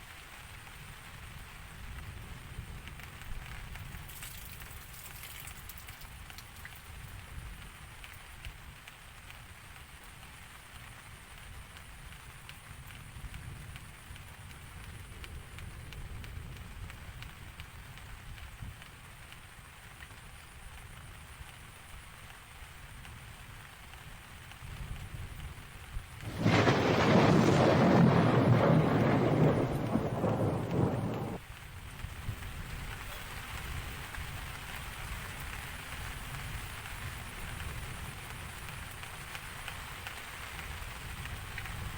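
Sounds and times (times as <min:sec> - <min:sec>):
steady rain: 0:00.0 - 0:41.9
thunder clap rumbling: 0:26.2 - 0:31.4.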